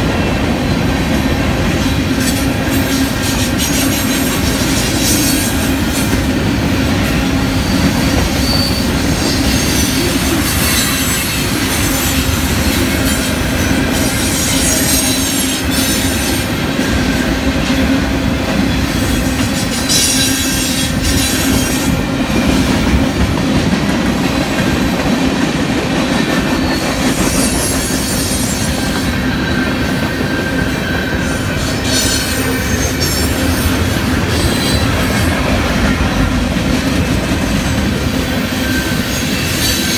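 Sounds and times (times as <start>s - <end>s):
train wheels on rails: 0.0s - 39.9s
high wheel squeal: 7.0s - 12.3s, 26.4s - 35.4s.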